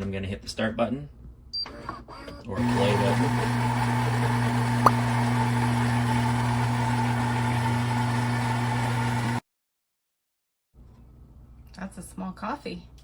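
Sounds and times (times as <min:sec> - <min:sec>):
espresso machine humming: 0:02.5 - 0:09.4.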